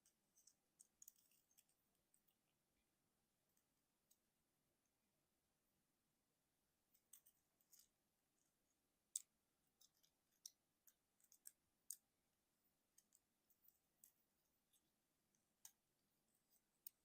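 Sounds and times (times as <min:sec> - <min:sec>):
plastic toy parts clicking: 0:09.1 - 0:12.1.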